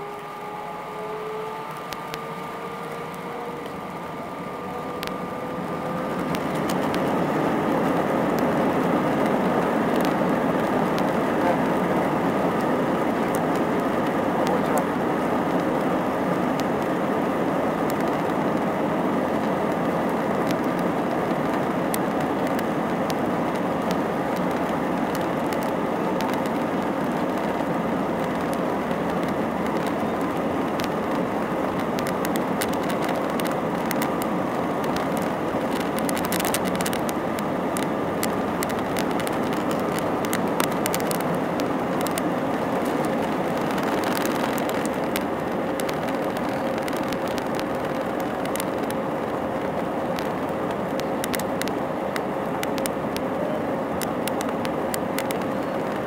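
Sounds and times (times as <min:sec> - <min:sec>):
jet engine and airflow noise: 0:00.0 - 0:56.0
light ticks and rattles: 0:19.3 - 0:53.2.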